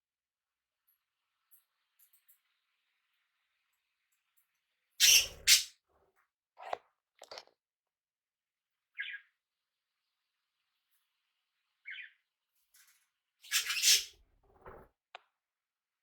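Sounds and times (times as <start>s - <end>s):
parrots calling: 5.0s - 5.7s, 13.5s - 14.1s.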